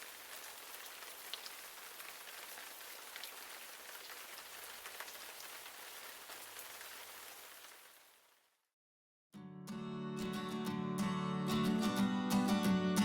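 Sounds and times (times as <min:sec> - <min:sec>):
rain falling: 0:00.0 - 0:08.4.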